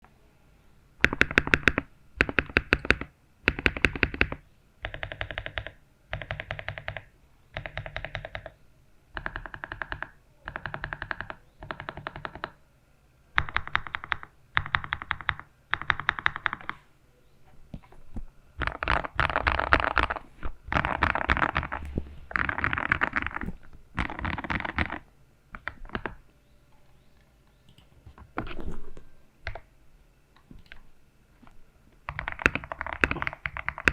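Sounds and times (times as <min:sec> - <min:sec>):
typing on mechanical keyboard: 0:01.0 - 0:08.6, 0:09.2 - 0:12.6, 0:13.4 - 0:16.8, 0:18.6 - 0:26.2, 0:32.1 - 0:33.9.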